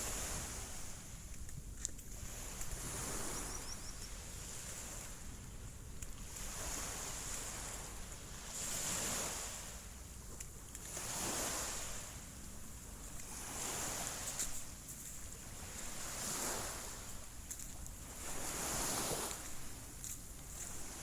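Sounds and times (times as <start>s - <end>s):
small waves washing onto sand: 0.0s - 21.0s
wind rumble on microphone: 0.0s - 21.0s.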